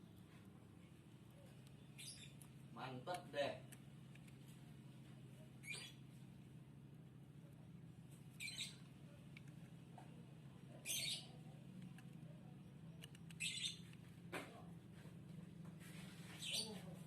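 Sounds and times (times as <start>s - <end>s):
small bird chirping: 1.4s - 2.7s, 5.3s - 6.2s, 8.1s - 10.1s, 10.7s - 14.2s, 16.1s - 17.0s.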